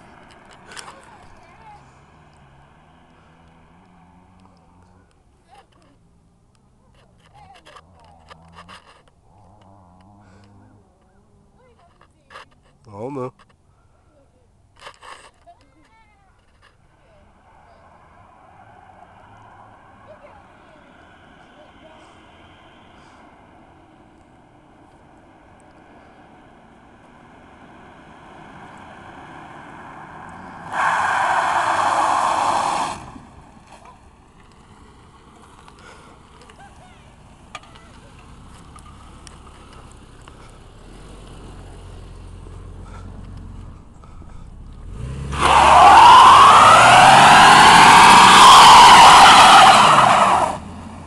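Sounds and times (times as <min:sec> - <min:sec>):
tyres spinning in a burnout: 0:17.2 - 0:51.0
truck engine revving: 0:17.8 - 0:51.0
tyres squealing: 0:29.8 - 0:33.1, 0:44.9 - 0:50.6.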